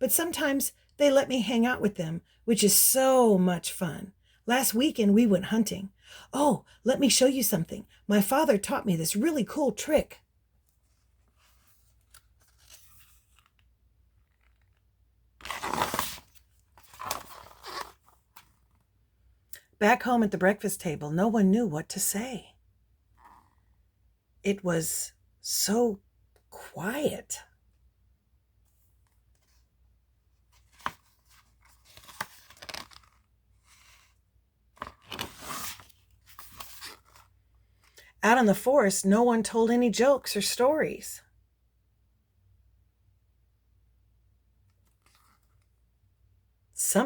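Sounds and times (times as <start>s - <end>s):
book pages rustling: 10.7s - 18.9s, 30.4s - 38.0s, 44.7s - 45.8s
book page snapping: 31.9s - 33.2s.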